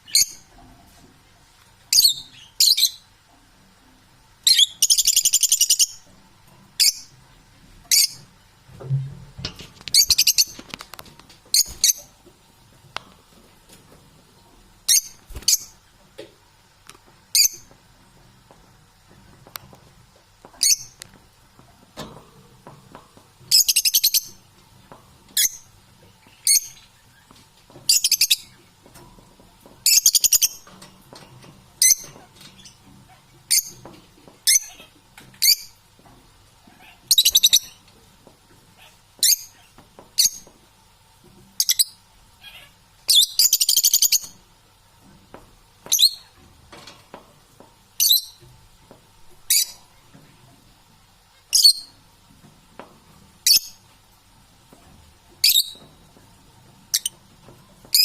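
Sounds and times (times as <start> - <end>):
parrots squawking: 34.5 - 35.6, 42.4 - 44.1.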